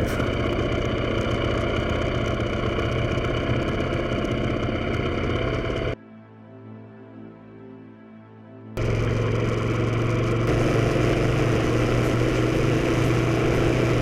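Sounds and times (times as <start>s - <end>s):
motorcycle engine running: 0.0s - 6.0s, 8.8s - 14.0s
road noise: 0.0s - 6.0s, 8.8s - 14.0s.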